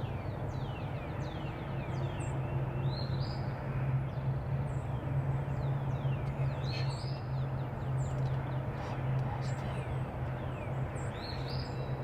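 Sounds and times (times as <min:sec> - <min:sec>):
steady low hum: 0:03.6 - 0:12.0
small birds chirping: 0:05.6 - 0:12.0.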